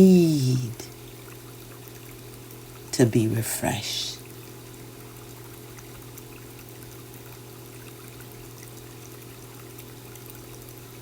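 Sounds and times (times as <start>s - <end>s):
low steady hum: 0.0s - 0.9s, 2.9s - 4.3s
trickling water: 0.0s - 11.0s.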